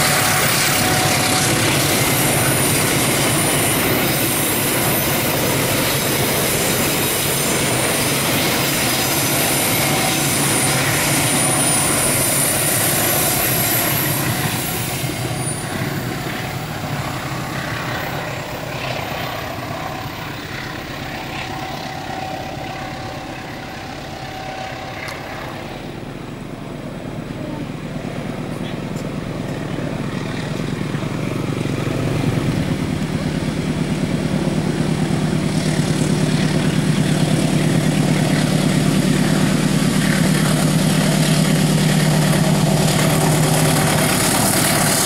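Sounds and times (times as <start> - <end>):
high wheel squeal: 0.0 - 26.1
train wheels rumbling on rails: 0.0 - 45.0.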